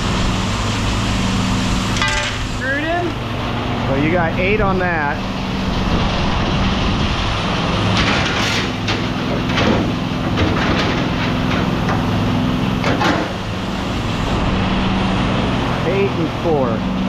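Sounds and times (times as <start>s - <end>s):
low machine hum: 0.0s - 17.0s
knocks and clatters of items: 7.9s - 12.1s, 12.8s - 13.4s.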